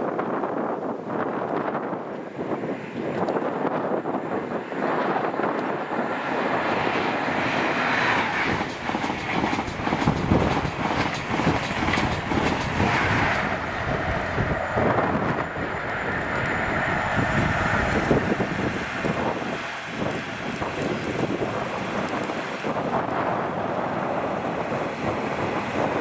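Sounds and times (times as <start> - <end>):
diesel train engine: 3.4 - 26.0
train wheels clattering on rails: 5.0 - 26.0.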